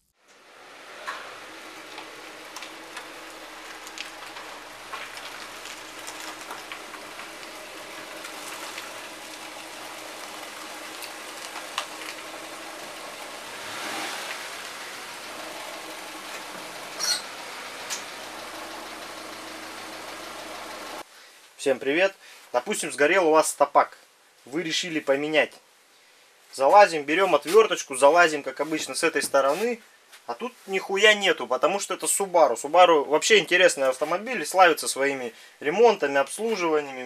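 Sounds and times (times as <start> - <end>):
car engine idling: 0.1 - 21.0
engine clatter: 0.3 - 21.0.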